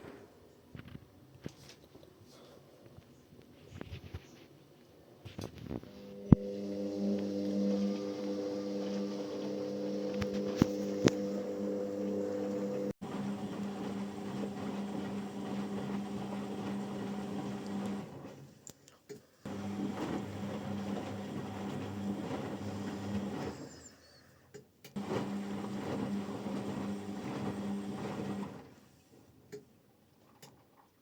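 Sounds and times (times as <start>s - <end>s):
washing machine drum motor hum: 5.9s - 18.4s, 19.5s - 23.8s, 25.0s - 28.8s.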